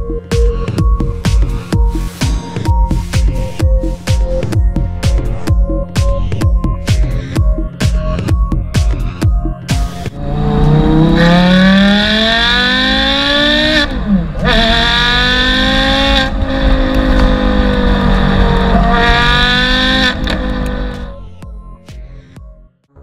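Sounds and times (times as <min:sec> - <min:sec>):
car engine revving: 0:10.1 - 0:21.1.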